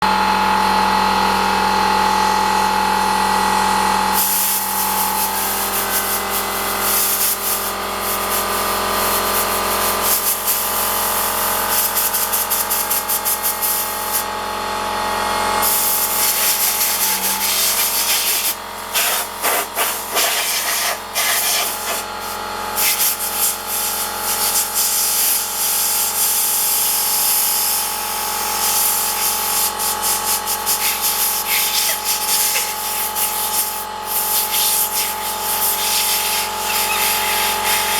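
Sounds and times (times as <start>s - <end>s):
air compressor humming: 0.0s - 37.9s
air blow gun hissing: 4.1s - 10.9s, 11.7s - 14.5s, 15.6s - 26.4s, 28.5s - 37.9s.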